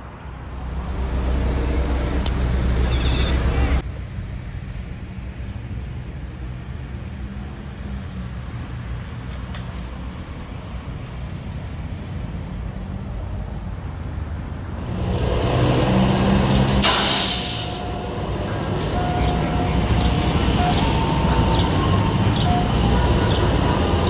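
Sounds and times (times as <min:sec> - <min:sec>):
truck engine running: 0:00.5 - 0:03.8
air brakes hissing: 0:16.8 - 0:18.1.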